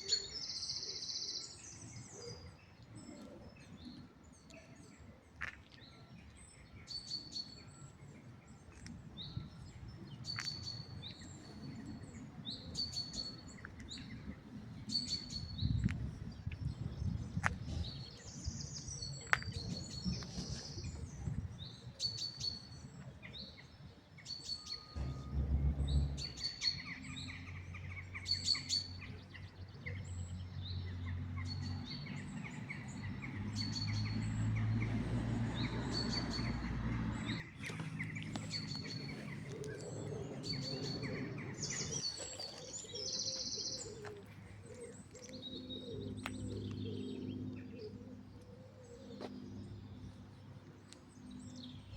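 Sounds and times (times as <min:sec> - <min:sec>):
birds chirping: 0:00.0 - 0:51.9
low rumble: 0:25.0 - 0:27.9.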